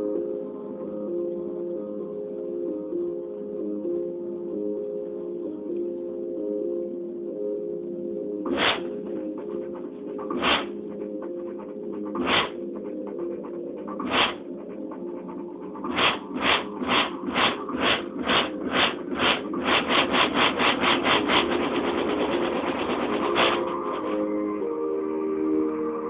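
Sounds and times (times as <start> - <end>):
synth chords: 7.1 - 26.0
drum roll: 8.5 - 10.7, 11.5 - 12.6, 13.3 - 14.5, 15.2 - 24.2.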